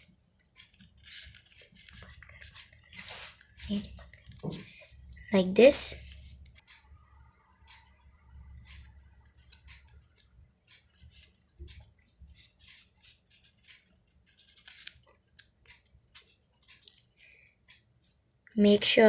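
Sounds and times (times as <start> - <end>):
paper rustling and crackling: 0.8 - 5.0, 12.3 - 15.4.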